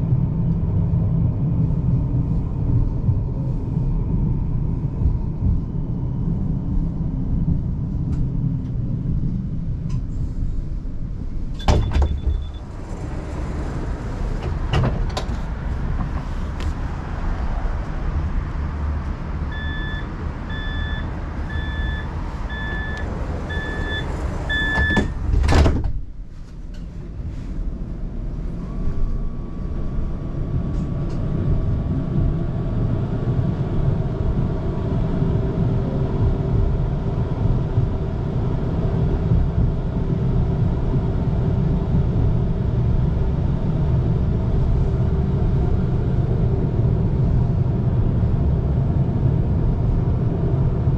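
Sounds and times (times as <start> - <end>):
vehicle rumbling: 0.0 - 50.9
door warning beeps: 11.6 - 12.6, 19.5 - 25.2
doors sliding shut with thud: 11.6 - 15.5, 23.6 - 26.1.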